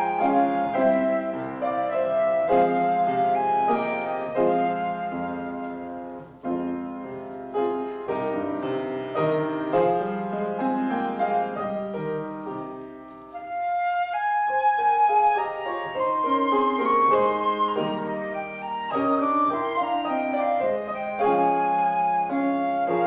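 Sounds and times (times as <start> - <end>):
flute melody: 0.0 - 23.0
piano chords: 0.0 - 23.0.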